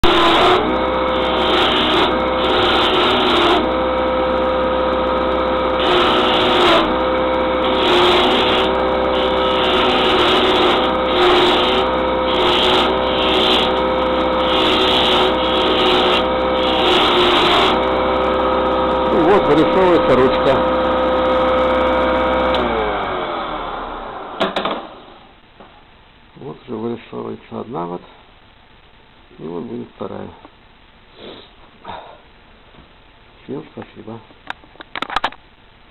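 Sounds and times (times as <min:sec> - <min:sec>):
chisel scraping spinning wood: 0:00.0 - 0:22.6
wood lathe motor hum: 0:00.0 - 0:24.4.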